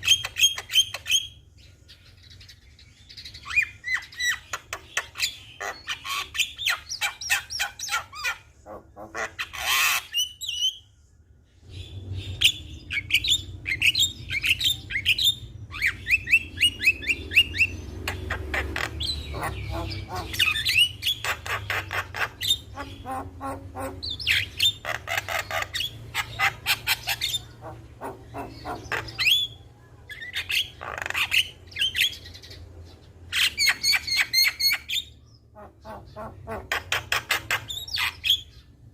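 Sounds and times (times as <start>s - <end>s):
myna singing and chattering: 18.0s - 31.6s.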